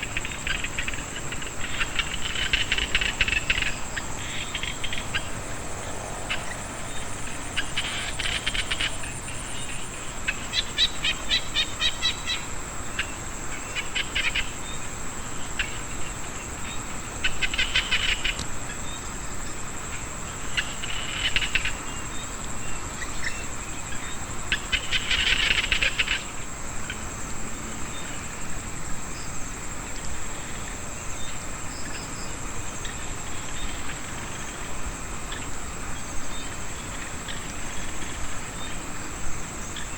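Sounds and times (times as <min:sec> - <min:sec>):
frogs calling: 0:00.0 - 0:39.9
insects droning: 0:00.0 - 0:39.9.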